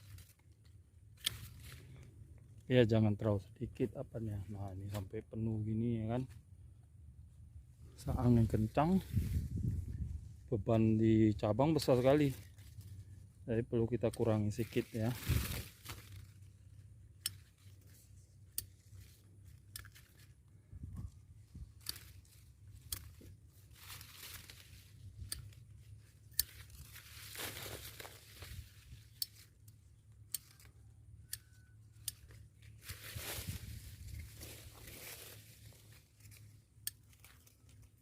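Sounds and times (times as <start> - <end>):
pruning shears snipping: 0.0 - 2.0, 17.0 - 20.5, 21.7 - 38.0
leafy branches rustling: 0.0 - 3.2, 7.8 - 30.8, 32.1 - 38.0.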